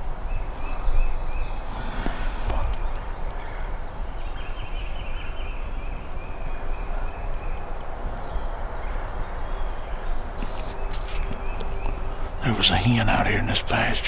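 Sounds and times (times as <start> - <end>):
steady low rumble: 9.8 - 14.0.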